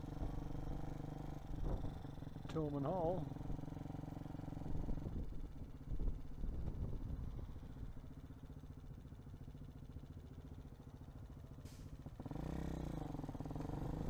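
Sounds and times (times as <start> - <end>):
motorcycle engine revving: 0.0 - 14.0
brief hiss: 11.7 - 12.0.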